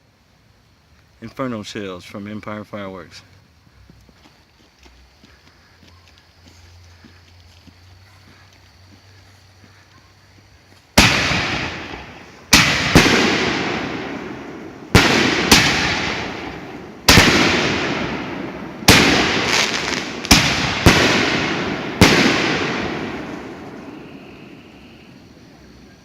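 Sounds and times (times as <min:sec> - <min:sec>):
firework shells banging: 0:11.0 - 0:24.6.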